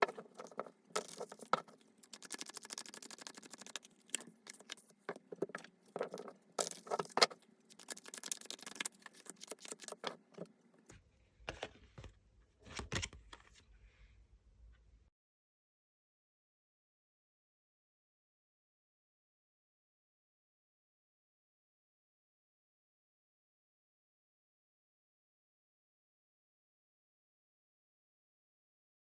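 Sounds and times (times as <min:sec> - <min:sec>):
cards being shuffled: 0:00.0 - 0:10.2.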